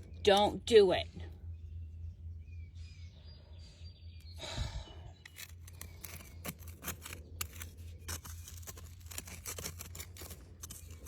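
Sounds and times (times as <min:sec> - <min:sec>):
steady low hum: 0:00.0 - 0:11.0
soil scraped by hand: 0:05.2 - 0:11.0.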